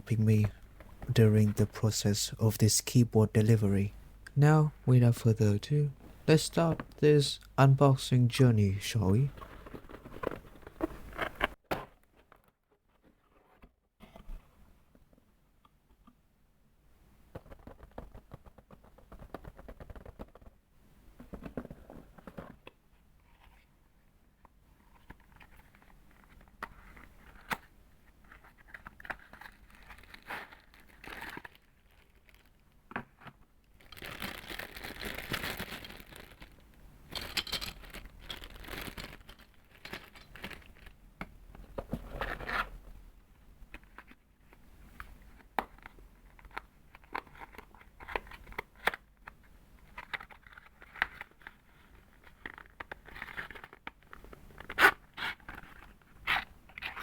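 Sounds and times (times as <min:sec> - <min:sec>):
packaging rustling and crinkling: 0:09.2 - 0:13.6, 0:28.2 - 0:41.0, 0:45.4 - 0:57.0.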